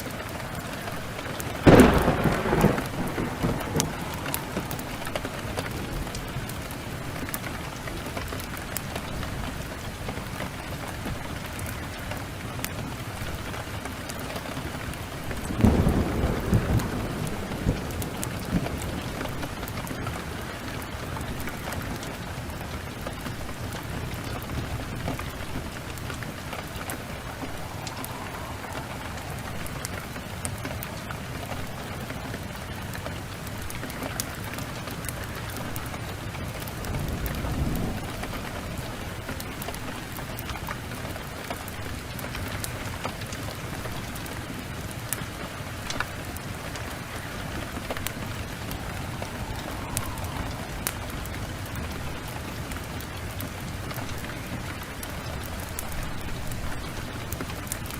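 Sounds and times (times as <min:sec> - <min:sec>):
steady rain: 0:00.0 - 0:57.9
wood fire crackling: 0:00.0 - 0:57.9
low rumble: 0:25.5 - 0:31.3, 0:47.3 - 0:53.0.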